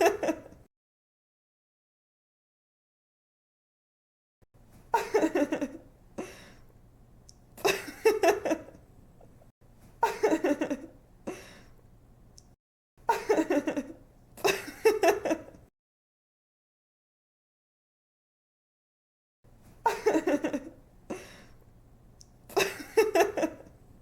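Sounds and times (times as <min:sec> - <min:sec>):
young woman giggling: 0:00.0 - 0:00.6, 0:04.9 - 0:05.9, 0:10.0 - 0:11.5, 0:13.1 - 0:15.6, 0:19.8 - 0:21.3, 0:22.5 - 0:23.7.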